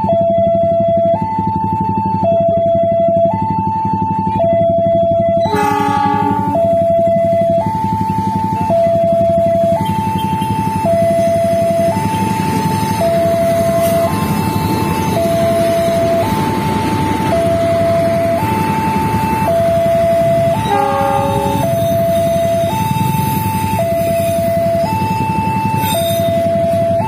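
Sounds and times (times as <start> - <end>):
two-tone level-crossing alarm: 0.0 - 27.0
chord-like horn blast: 5.4 - 7.3, 20.6 - 22.2.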